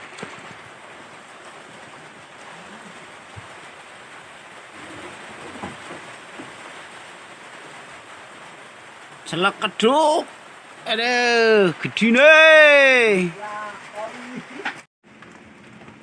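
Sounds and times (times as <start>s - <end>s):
steady hiss: 0.0s - 15.3s.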